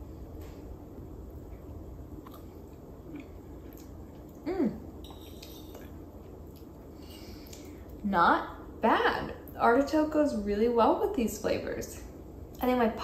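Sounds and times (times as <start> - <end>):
quiet chewing: 1.4 - 4.5
person humming: 4.4 - 4.8.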